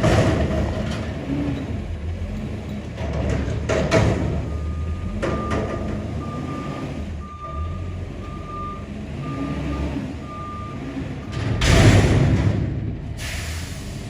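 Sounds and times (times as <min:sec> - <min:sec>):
diesel engine running: 0:00.0 - 0:14.0
backup alarm beeping: 0:04.5 - 0:10.9
air hiss burst: 0:13.2 - 0:14.0.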